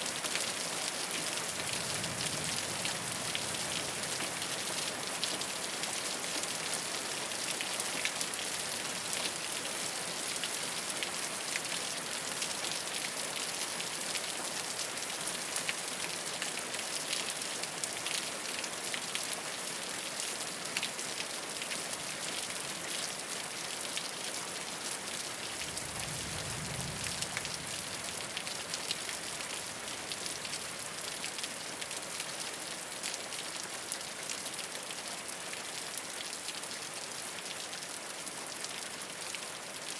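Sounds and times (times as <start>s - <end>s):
rain falling on a rooftop: 0.0s - 39.9s
low rumble: 25.5s - 29.4s.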